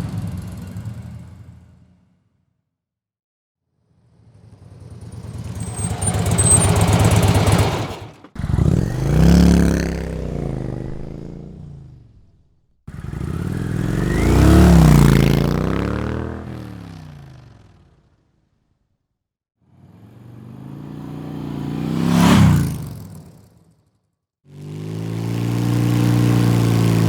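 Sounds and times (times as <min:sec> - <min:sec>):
motorcycle engine passing: 0:05.1 - 0:17.9, 0:19.8 - 0:23.0.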